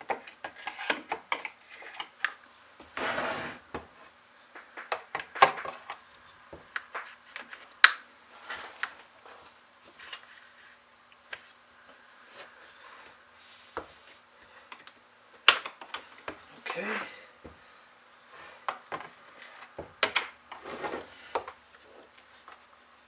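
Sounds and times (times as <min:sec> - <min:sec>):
scraping rub: 0:03.0 - 0:03.6
clicks and taps of parts: 0:07.8 - 0:08.0, 0:14.7 - 0:16.4.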